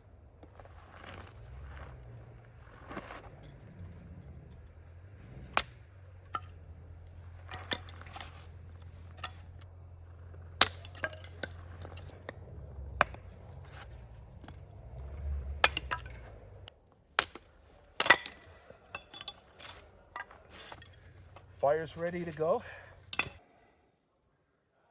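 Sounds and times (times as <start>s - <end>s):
low rumble: 0.0s - 16.7s
cookware and firewood clinking: 10.4s - 12.4s, 17.2s - 23.4s.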